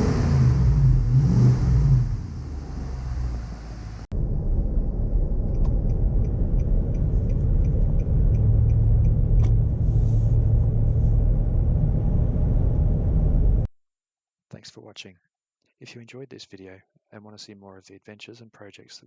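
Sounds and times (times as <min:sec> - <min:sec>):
engine exhaust rumbling: 0:00.0 - 0:13.7.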